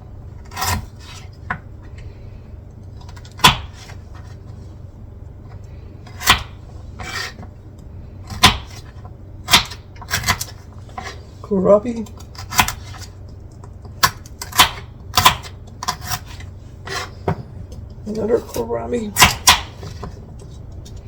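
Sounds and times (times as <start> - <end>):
low steady hum: 0.0 - 21.0
knife chopping on cutting board: 0.4 - 1.7, 3.1 - 4.2, 6.0 - 7.4, 8.2 - 11.2, 12.2 - 13.1, 14.0 - 17.8, 19.2 - 20.2.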